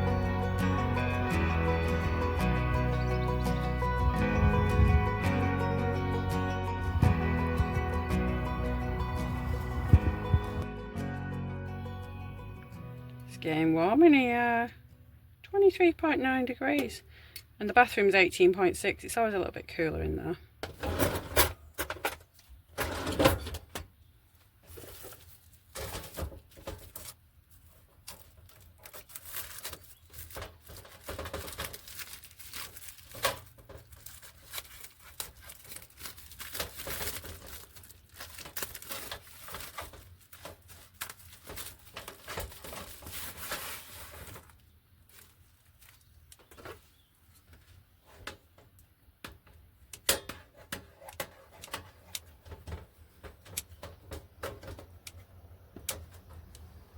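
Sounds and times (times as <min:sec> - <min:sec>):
objects being handled: 0:20.6 - 0:56.8.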